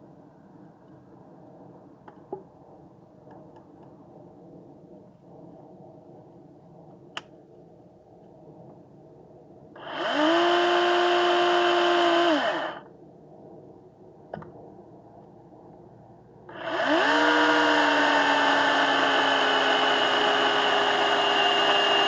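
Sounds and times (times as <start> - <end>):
electric saw motor whining: 9.8 - 12.8, 16.5 - 22.0.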